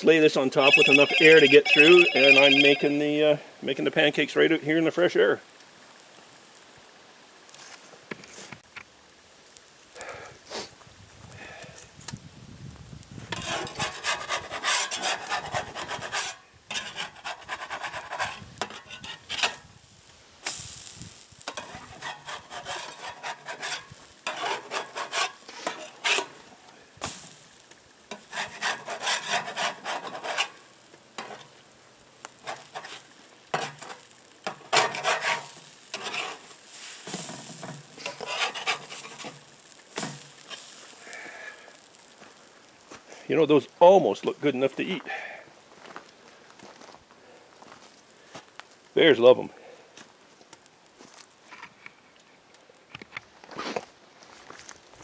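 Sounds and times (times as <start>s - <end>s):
utensil scraping a griddle: 13.3s - 19.7s, 20.4s - 42.5s.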